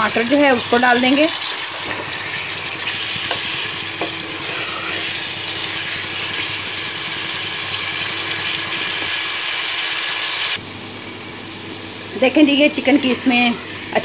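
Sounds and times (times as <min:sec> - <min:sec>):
chicken sizzling in oil: 0:00.0 - 0:10.6.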